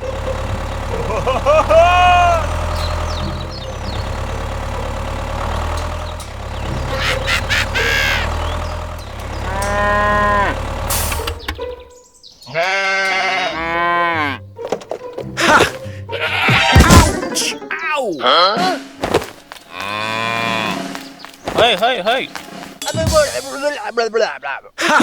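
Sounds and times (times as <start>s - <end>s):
animal calls rising and falling: 1.0s - 4.5s, 5.2s - 10.8s, 12.5s - 14.4s.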